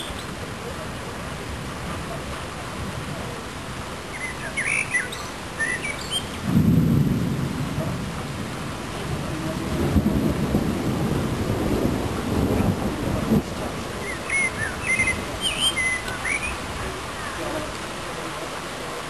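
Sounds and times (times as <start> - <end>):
steady rain: 0.0 - 19.0
bird chirping: 4.2 - 6.4, 14.0 - 16.6
thunder rumbling: 6.3 - 15.4.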